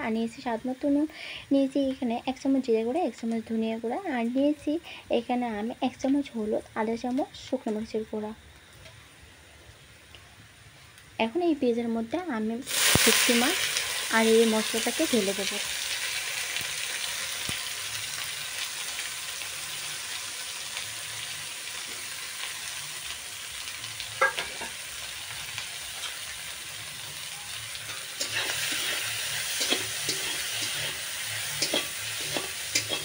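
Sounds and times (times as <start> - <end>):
oil sizzling in a wok: 0.0 - 33.0
clank: 24.2 - 24.7
steel spatula scraping wok: 27.0 - 33.0.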